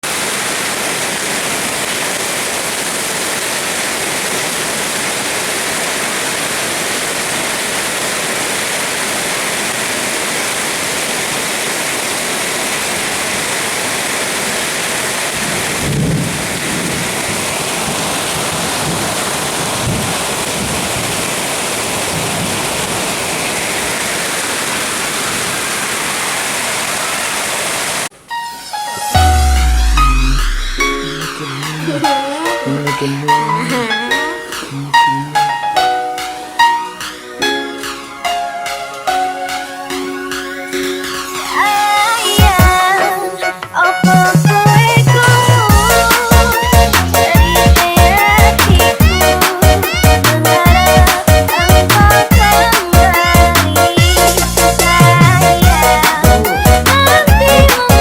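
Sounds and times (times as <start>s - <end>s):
heavy rain pouring: 0.0s - 58.0s
low rumbles of thunder: 15.3s - 21.3s.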